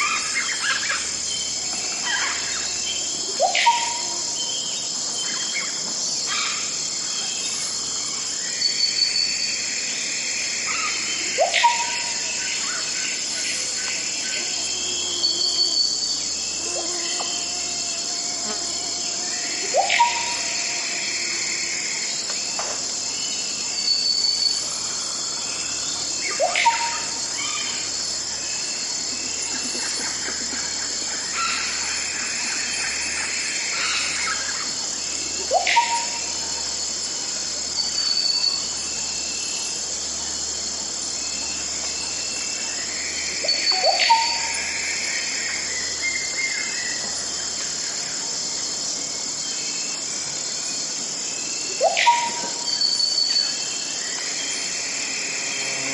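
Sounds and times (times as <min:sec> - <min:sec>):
high insect chorus: 0:00.0 - 0:55.9
rising whistled bird call: 0:43.4 - 0:44.5, 0:51.8 - 0:53.6.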